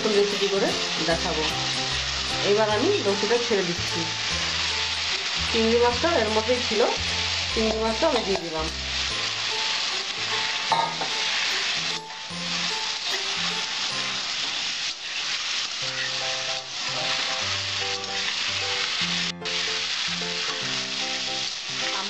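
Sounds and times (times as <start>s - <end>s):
food sizzling in a metal pan: 0.0s - 22.0s
metal spatula stirring: 7.2s - 14.0s.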